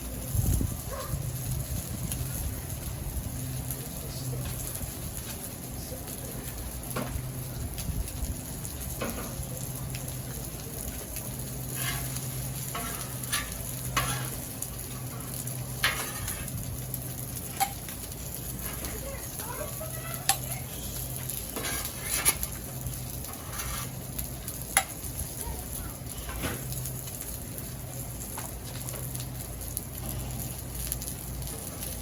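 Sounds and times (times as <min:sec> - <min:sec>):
sizzling on a hot griddle: 0:00.0 - 0:32.0
metal utensil scraping steel cooktop: 0:11.7 - 0:14.5, 0:15.8 - 0:16.6, 0:21.5 - 0:22.5, 0:23.3 - 0:24.0.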